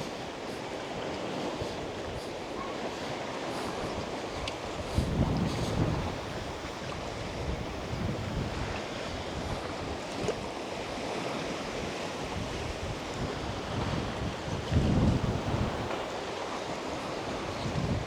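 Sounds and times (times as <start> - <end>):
lake waves lapping shore: 0.0 - 18.0
wind buffeting microphone: 0.0 - 18.0
low rumble gusts: 4.9 - 8.8, 12.5 - 16.1.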